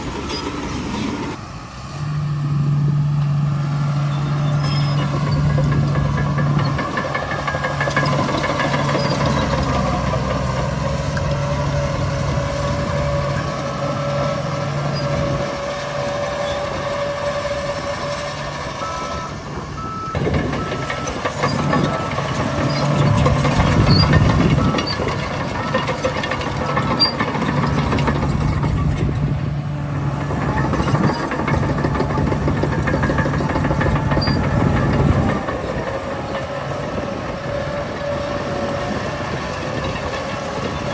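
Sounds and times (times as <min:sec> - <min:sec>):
heavy diesel engines working: 0:00.0 - 0:40.9
reversing alarm beeping: 0:11.3 - 0:28.9.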